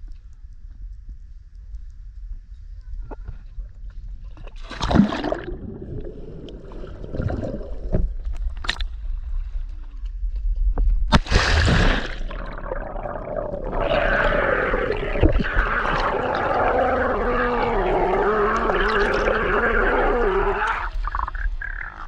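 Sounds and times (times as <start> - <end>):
underwater rush and gurgle: 4.5 - 8.8, 11.1 - 22.0
water splash: 4.6 - 8.8, 11.1 - 19.4.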